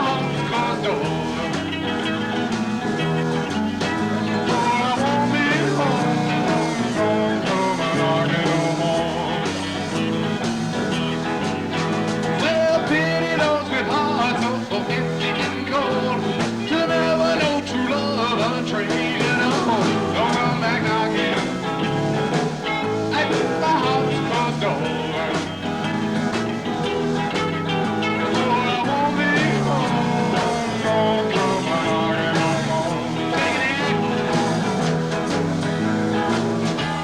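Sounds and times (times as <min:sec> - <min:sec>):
live rock band playing: 0:00.0 - 0:37.0.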